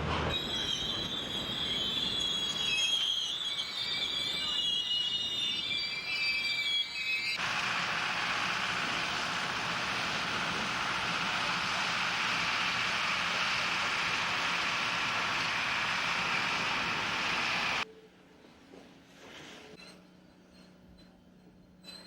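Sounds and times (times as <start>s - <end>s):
steam locomotive hissing steam: 0.3s - 17.8s.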